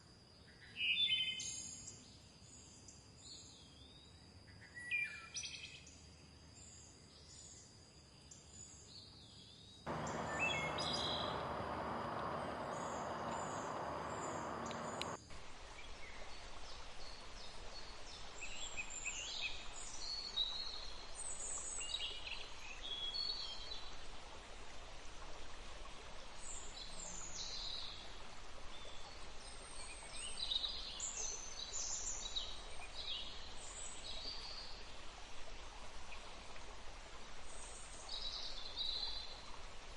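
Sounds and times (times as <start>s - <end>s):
birds chirping and trilling: 9.9s - 15.2s
running water: 9.9s - 15.5s.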